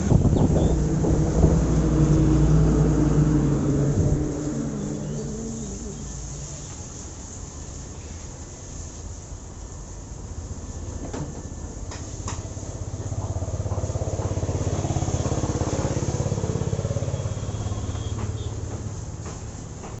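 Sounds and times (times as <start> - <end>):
motorcycle engine revving: 0.0 - 6.4, 12.5 - 19.0.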